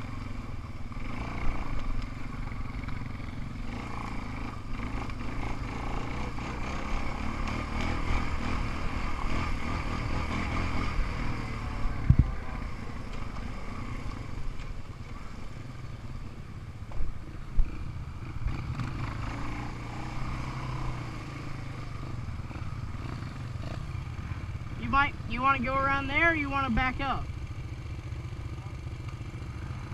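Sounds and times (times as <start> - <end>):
off-road vehicle engine running: 0.0 - 29.9.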